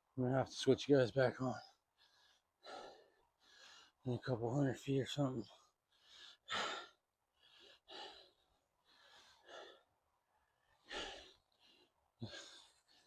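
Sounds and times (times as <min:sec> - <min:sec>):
man breathing hard: 0:01.7 - 0:04.0, 0:05.6 - 0:13.0.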